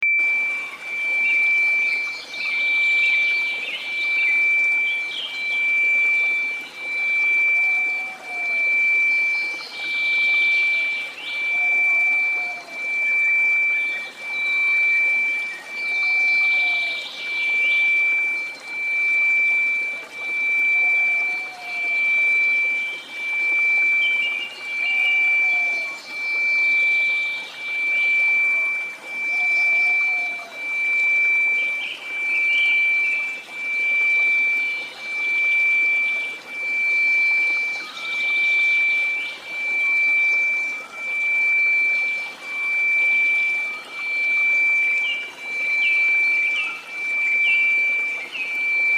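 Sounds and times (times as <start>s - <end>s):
faint chirps and gurgles: 0.0s - 48.9s
pulsing sine tone: 0.0s - 48.9s.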